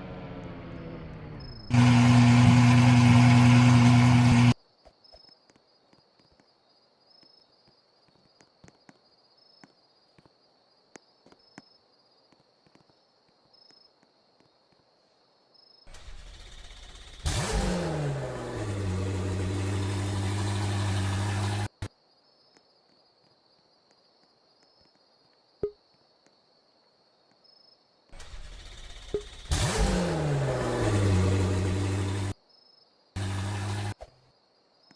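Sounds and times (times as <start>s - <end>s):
car engine revving: 0.0s - 4.6s, 16.4s - 21.9s, 28.5s - 32.3s, 33.2s - 34.0s.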